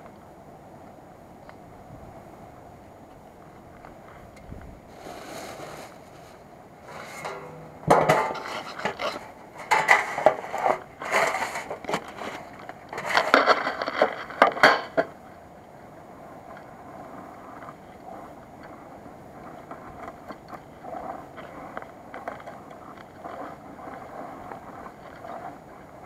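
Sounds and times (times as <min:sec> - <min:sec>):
metal cookware clinking: 0:07.0 - 0:08.8.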